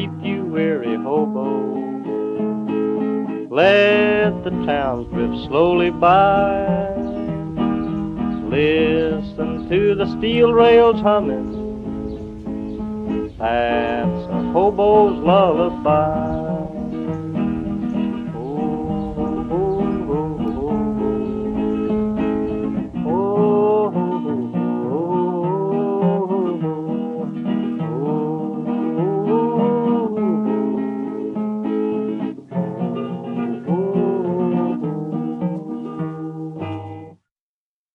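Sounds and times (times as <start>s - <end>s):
acoustic guitar accompaniment: 0.0s - 37.3s
sliding melody line: 3.6s - 25.2s.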